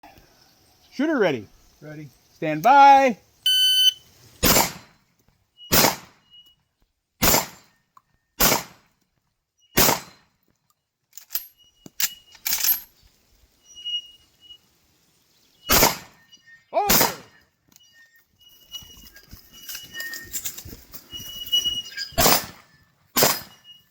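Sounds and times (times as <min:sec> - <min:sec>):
gunshots: 0:04.4 - 0:04.9, 0:05.7 - 0:06.2, 0:07.2 - 0:07.7, 0:08.4 - 0:08.9, 0:09.8 - 0:10.2, 0:15.7 - 0:16.2, 0:16.8 - 0:17.4, 0:22.2 - 0:22.6, 0:23.2 - 0:23.6.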